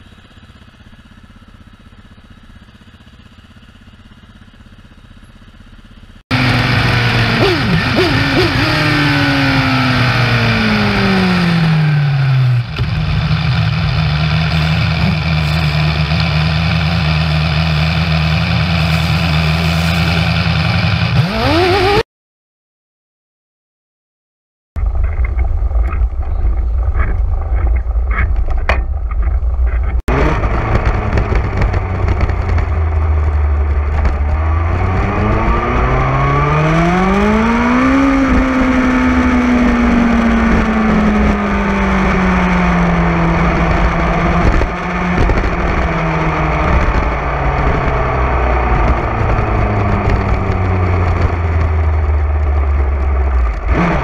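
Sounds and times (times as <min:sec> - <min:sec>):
motorcycle engine running: 0:00.0 - 0:22.0, 0:24.8 - 0:54.0
heavy low rumble: 0:06.3 - 0:21.3, 0:24.8 - 0:36.5, 0:38.2 - 0:54.0.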